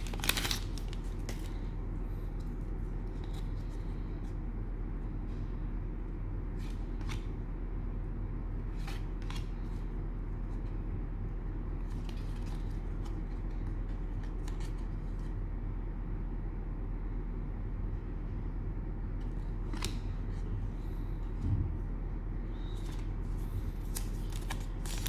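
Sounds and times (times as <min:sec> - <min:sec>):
cards clicking and scraping: 0:00.0 - 0:01.6, 0:08.7 - 0:09.9, 0:19.3 - 0:20.5, 0:22.6 - 0:25.0
steady low hum: 0:00.0 - 0:25.0.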